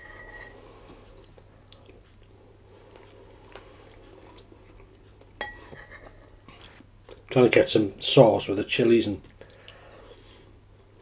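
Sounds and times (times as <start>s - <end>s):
person chewing food: 0.4s - 5.4s.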